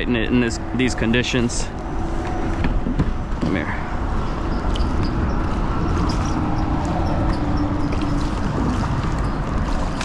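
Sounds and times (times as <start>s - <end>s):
wind on microphone: 0.0s - 10.0s
water lapping against hull: 1.7s - 10.0s
small splashes: 6.7s - 10.0s.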